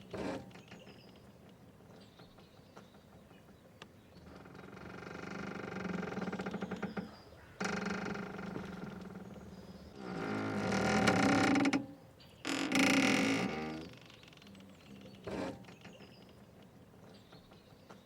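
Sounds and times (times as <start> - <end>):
mooring rope creaking under strain: 0.0 - 1.0, 4.2 - 16.7.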